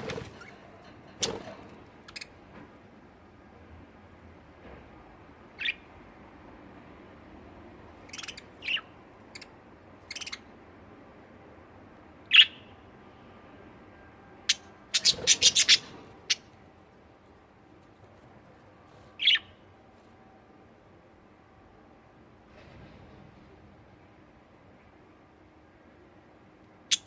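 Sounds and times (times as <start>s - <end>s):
budgerigars chirping: 8.1s - 9.5s, 10.1s - 10.4s, 14.5s - 16.5s, 19.2s - 19.6s.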